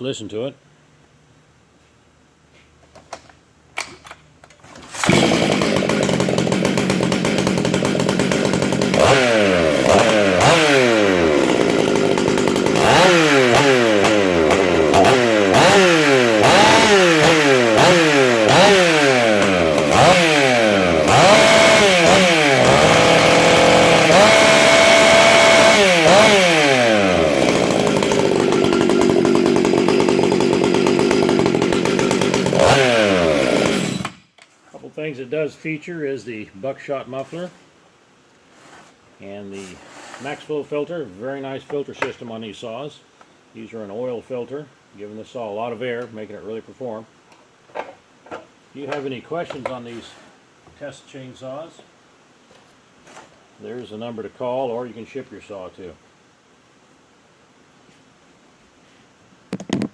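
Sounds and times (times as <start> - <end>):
chainsaw revving: 4.8 - 34.3.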